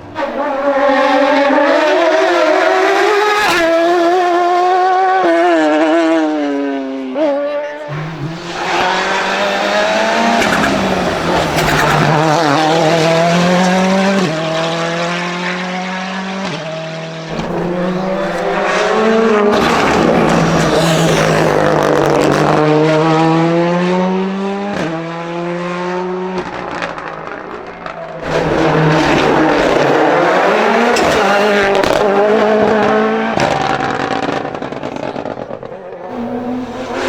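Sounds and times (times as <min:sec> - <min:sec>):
race car engine revving: 0:00.0 - 0:37.0
gear changes: 0:07.9 - 0:14.8, 0:17.3 - 0:22.7, 0:33.6 - 0:37.0.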